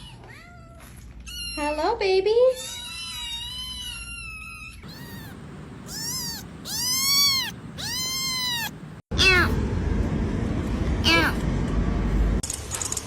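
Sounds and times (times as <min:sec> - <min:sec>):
cat meowing: 0:02.6 - 0:09.6.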